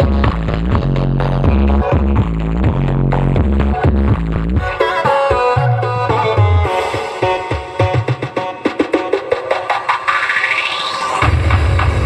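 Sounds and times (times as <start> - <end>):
heavy bass: 0.0 - 8.5, 11.2 - 12.0
electronic dance music: 0.0 - 12.0.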